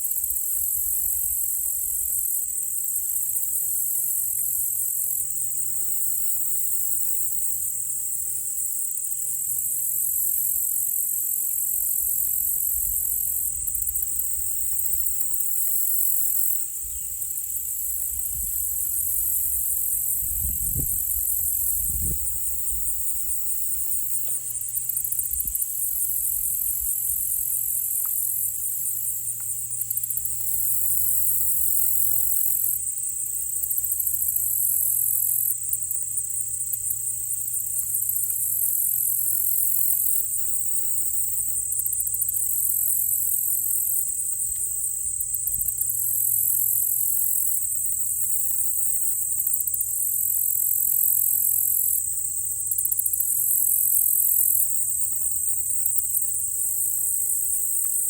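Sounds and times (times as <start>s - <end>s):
crickets and insects chirping: 0.0s - 58.0s
pulsing insect trill: 0.0s - 58.0s.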